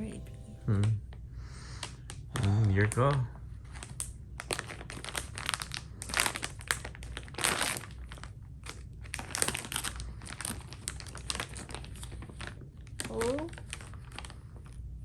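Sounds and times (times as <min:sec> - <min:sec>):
plastic packaging crinkling: 0:03.8 - 0:14.4.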